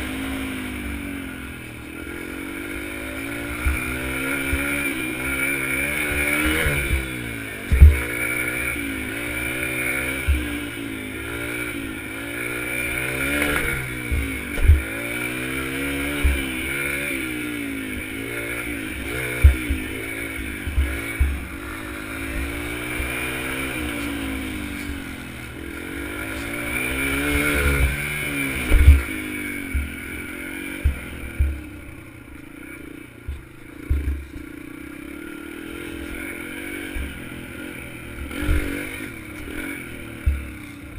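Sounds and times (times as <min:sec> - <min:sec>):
dirt bike engine revving: 0:00.0 - 0:40.9
sharp low thumps: 0:07.7 - 0:08.0, 0:14.1 - 0:14.9, 0:28.6 - 0:29.1.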